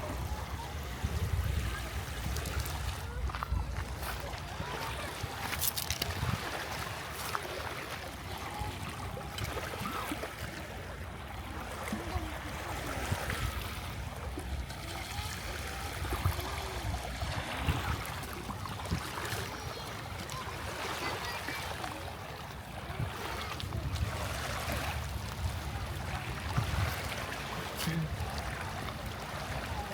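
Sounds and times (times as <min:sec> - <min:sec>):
wind on microphone: 0:00.0 - 0:07.1, 0:12.9 - 0:19.8, 0:22.8 - 0:29.9
faint distant voices: 0:00.0 - 0:29.9
shallow water: 0:00.0 - 0:29.9.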